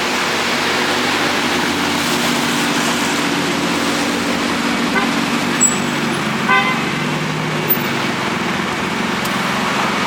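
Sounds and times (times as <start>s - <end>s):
road noise hiss: 0.0s - 10.0s
vehicle engines running: 0.0s - 10.0s
car horn toot: 4.9s - 7.1s.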